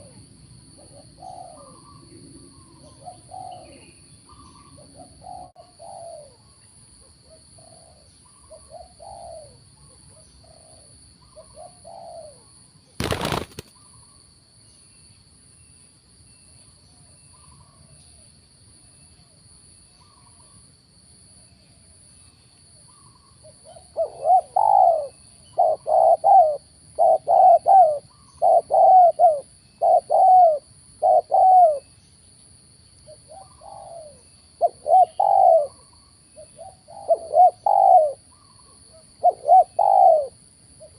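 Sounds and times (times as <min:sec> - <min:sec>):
doves cooing: 0:00.8 - 0:06.4, 0:07.6 - 0:09.6, 0:10.4 - 0:12.4, 0:22.9 - 0:31.9, 0:33.3 - 0:40.9.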